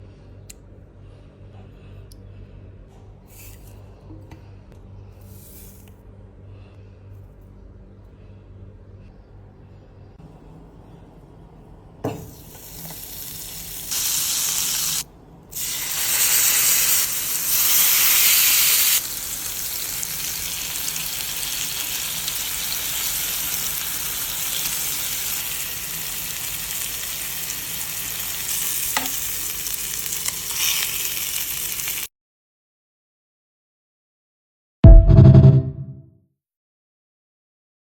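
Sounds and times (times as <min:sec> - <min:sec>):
chicken sizzling in a pan: 0:12.3 - 0:32.1.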